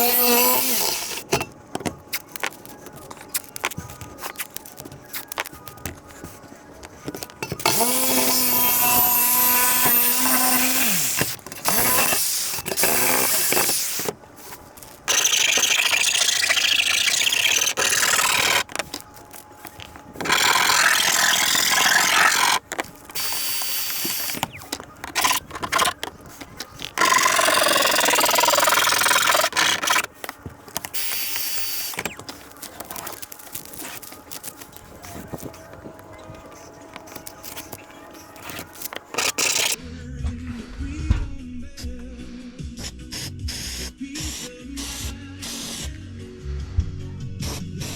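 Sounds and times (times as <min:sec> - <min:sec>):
power tool cutting steel: 0:00.0 - 0:01.3, 0:07.6 - 0:14.1, 0:15.1 - 0:18.7, 0:20.2 - 0:26.0, 0:26.8 - 0:30.1, 0:31.0 - 0:32.2, 0:36.4 - 0:39.8
motor whining: 0:00.0 - 0:01.4, 0:07.5 - 0:14.2, 0:15.0 - 0:39.8.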